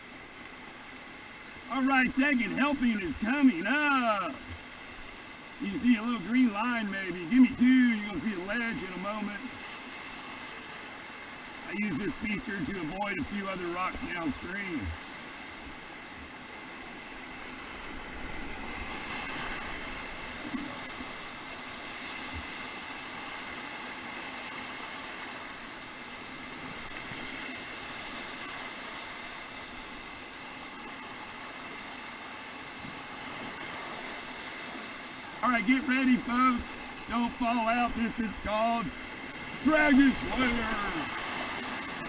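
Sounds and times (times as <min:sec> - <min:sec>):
whitewater rapids rushing: 0:00.0 - 0:42.0.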